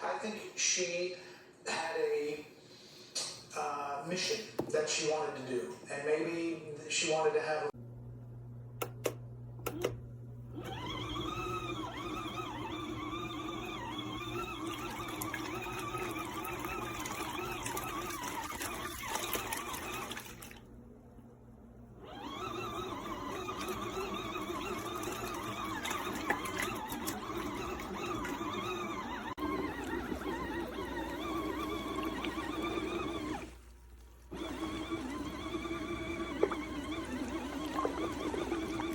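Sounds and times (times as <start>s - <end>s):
washing machine motor churning water: 8.8s - 38.9s.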